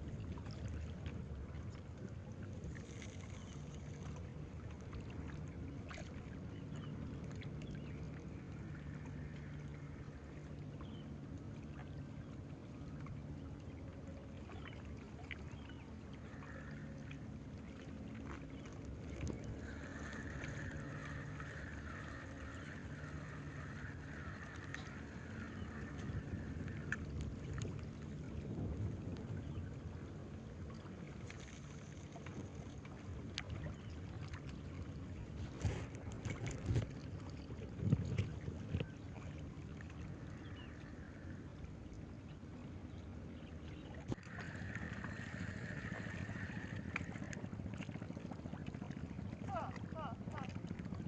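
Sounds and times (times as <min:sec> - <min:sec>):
boat engine droning: 0:00.0 - 0:51.0.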